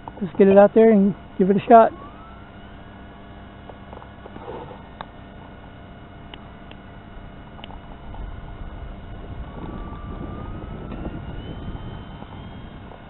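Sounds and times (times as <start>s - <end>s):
electric motor whine: 0.0s - 13.0s
wind rumbling on microphone: 6.2s - 13.0s.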